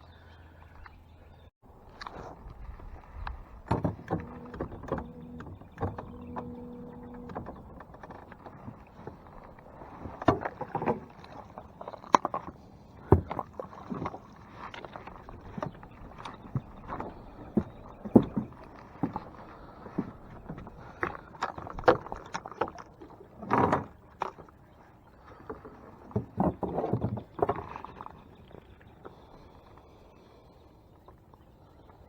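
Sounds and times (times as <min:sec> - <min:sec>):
steady hum: 0:03.8 - 0:10.5.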